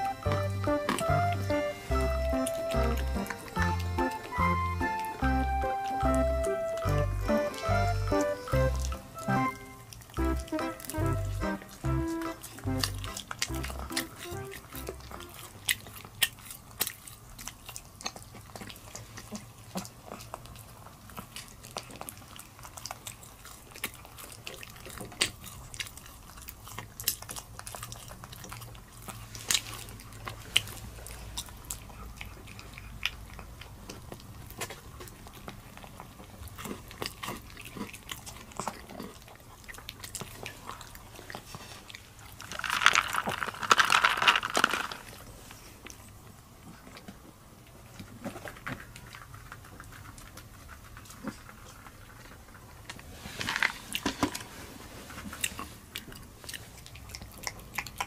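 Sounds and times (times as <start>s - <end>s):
dog chewing and licking: 0.0s - 54.4s, 55.1s - 58.0s
straw rattling in plastic cup: 42.4s - 45.1s.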